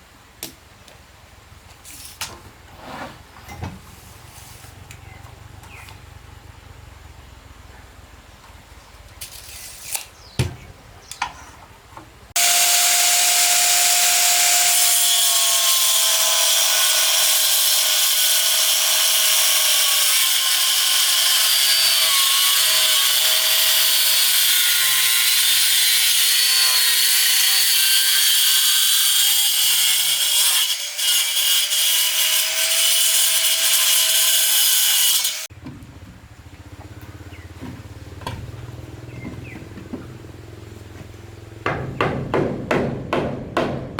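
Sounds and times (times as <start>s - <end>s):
power saw cutting wood: 12.4s - 35.5s.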